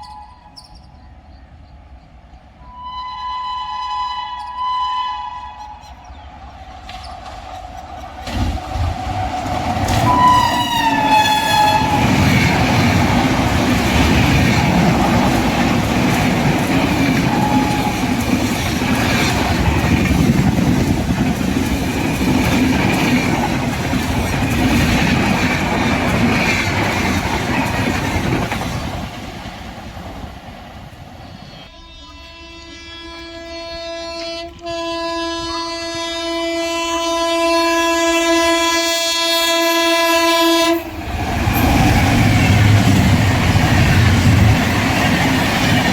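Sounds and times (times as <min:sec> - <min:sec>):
train horn: 0:00.0 - 0:00.6, 0:02.6 - 0:06.1, 0:09.9 - 0:12.8, 0:16.9 - 0:18.3, 0:31.5 - 0:41.0
train rumble and wheel clatter: 0:00.0 - 0:45.9.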